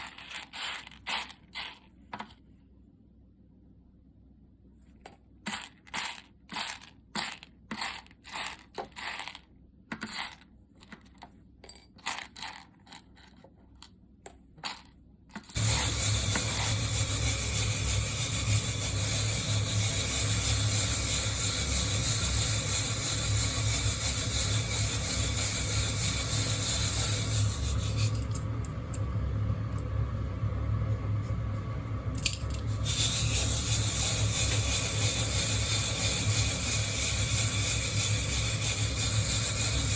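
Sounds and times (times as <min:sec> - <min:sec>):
coffee beans rattling: 0:00.0 - 0:01.8, 0:05.5 - 0:09.4, 0:10.0 - 0:10.4, 0:11.7 - 0:13.4, 0:14.6 - 0:28.5, 0:32.2 - 0:39.9
low electric hum: 0:00.0 - 0:39.9.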